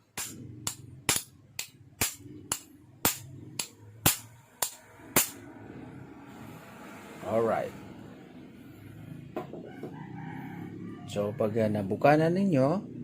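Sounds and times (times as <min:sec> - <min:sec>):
hammer striking metal punch: 0:00.1 - 0:05.4.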